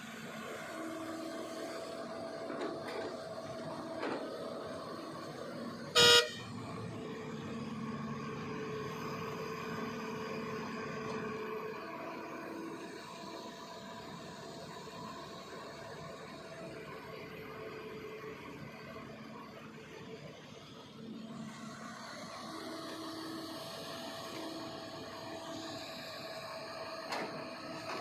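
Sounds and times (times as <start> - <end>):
excavator diesel engine running: 0.0 - 28.0
loud horn blast: 5.9 - 6.5.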